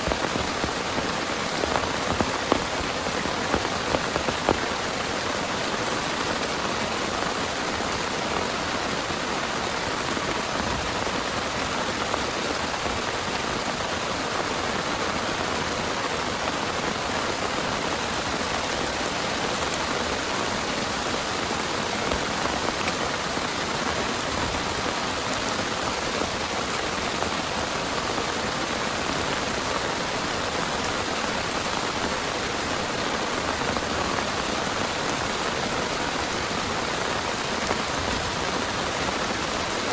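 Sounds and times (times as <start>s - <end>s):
individual raindrop hits: 0.0s - 6.8s
heavy rain falling: 0.0s - 39.9s.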